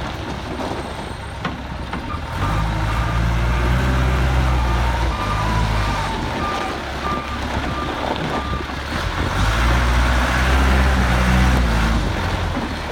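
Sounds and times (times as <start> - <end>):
diesel engine running: 0.0 - 12.9
reverse alarm beeping: 2.8 - 8.6.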